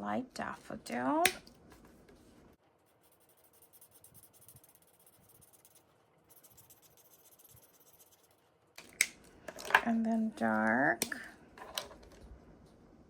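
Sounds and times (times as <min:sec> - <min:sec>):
marker scratching on cardstock: 0:02.8 - 0:08.4.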